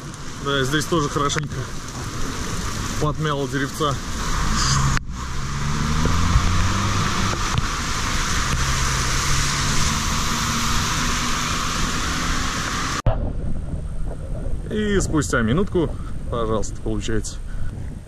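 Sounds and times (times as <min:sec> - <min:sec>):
water hissing on flooded street: 0:00.0 - 0:13.0.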